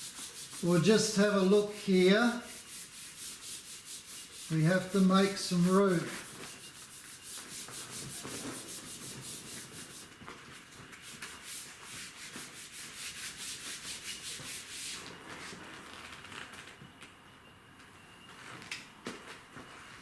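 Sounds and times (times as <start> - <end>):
eraser rubbing on board: 0.0 - 10.1, 11.0 - 15.0.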